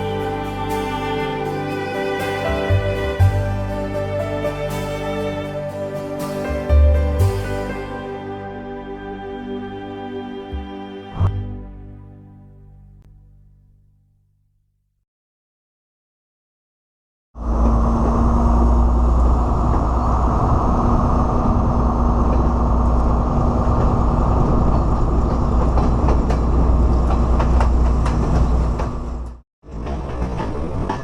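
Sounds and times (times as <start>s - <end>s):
train rumbling on track: 17.4s - 31.0s
rail clicks: 24.6s - 31.0s.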